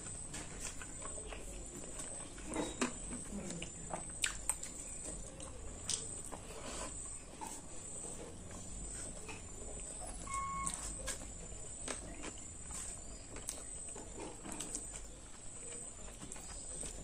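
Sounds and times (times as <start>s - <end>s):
person chewing: 0.0s - 9.9s, 10.6s - 17.0s
short faint beep: 10.0s - 11.0s.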